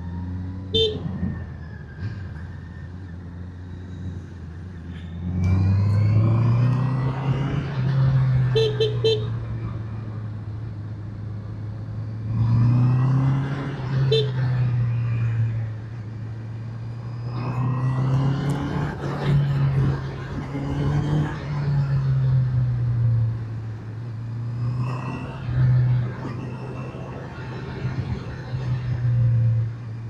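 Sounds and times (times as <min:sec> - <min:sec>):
horn beeps: 0:00.7 - 0:01.1, 0:08.4 - 0:09.4, 0:14.1 - 0:14.5.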